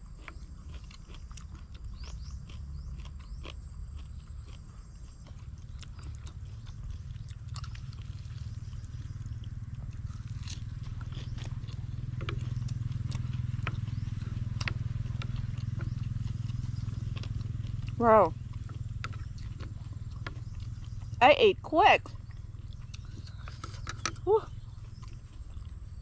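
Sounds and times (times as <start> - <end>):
steady low hum: 0.0 - 26.0
wet chewing smacks: 0.1 - 21.2, 22.1 - 26.0.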